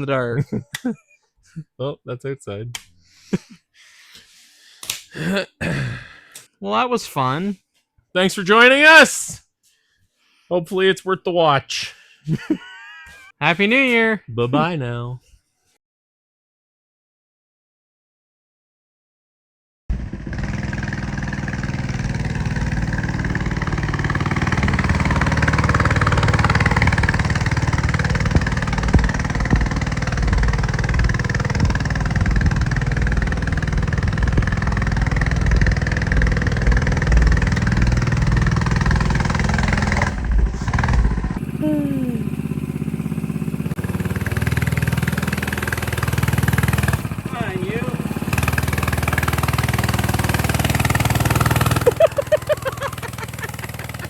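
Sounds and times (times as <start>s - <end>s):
minibike engine running: 19.9s - 54.0s.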